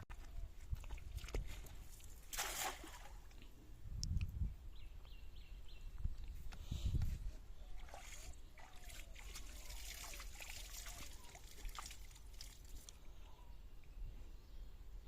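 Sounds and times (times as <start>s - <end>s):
water splashing and trickling: 0.6s - 3.5s, 7.6s - 13.1s.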